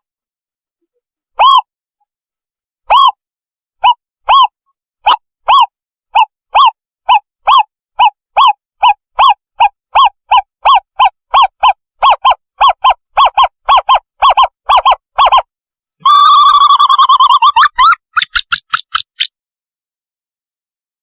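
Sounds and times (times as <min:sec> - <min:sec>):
owl lure call hoots: 0:01.4 - 0:01.7, 0:02.9 - 0:03.2, 0:03.8 - 0:19.3.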